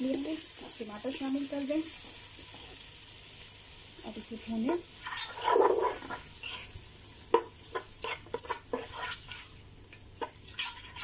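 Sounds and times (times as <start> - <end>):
tomatoes sizzling in oil: 0.0 - 11.0
spoon scraping and tapping pot: 7.3 - 9.4.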